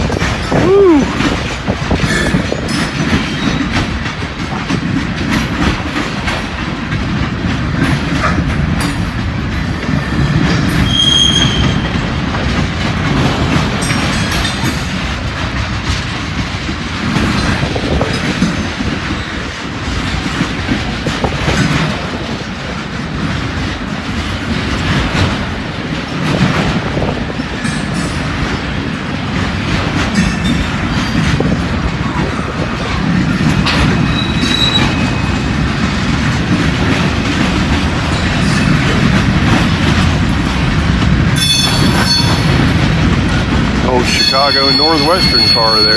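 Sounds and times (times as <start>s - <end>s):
freight train rumbling past: 0.0s - 45.9s
wheels clicking over rail joints: 0.0s - 45.9s
high wheel squeal: 10.7s - 11.9s, 33.8s - 35.5s, 41.4s - 42.8s, 43.9s - 45.9s.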